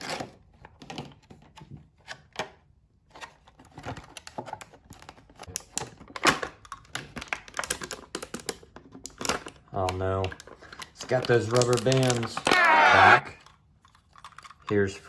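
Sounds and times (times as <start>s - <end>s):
plastic packaging crackling: 6.9s - 12.8s.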